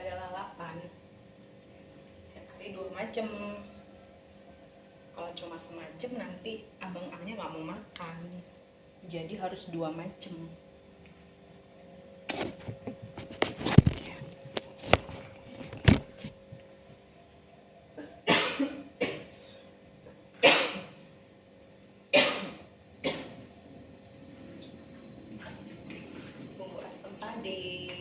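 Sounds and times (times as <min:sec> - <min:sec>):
woman coughing: 0:18.0 - 0:19.3, 0:20.4 - 0:21.0, 0:22.1 - 0:23.4.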